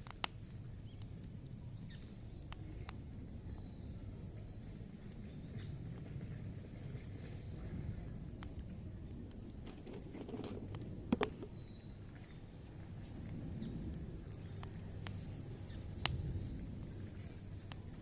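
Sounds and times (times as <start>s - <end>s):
sharp pops of fire: 0.0s - 3.1s, 14.2s - 16.5s
campfire crackling: 0.0s - 18.0s
low steady fire rush: 0.0s - 18.0s.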